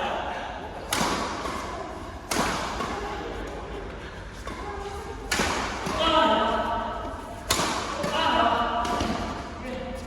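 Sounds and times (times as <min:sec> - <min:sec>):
voices in sports hall: 0:00.0 - 0:10.0
racket striking shuttlecock: 0:00.8 - 0:03.0, 0:04.5 - 0:06.4, 0:07.4 - 0:09.3.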